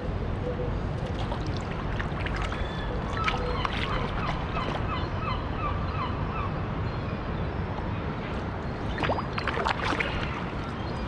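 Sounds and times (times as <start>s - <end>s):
bird calling rapidly: 2.4s - 6.1s.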